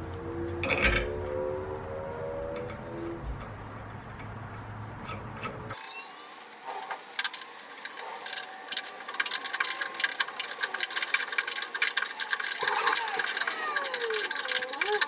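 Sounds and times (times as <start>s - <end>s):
hand tool ratcheting clicks: 7.2s - 15.0s.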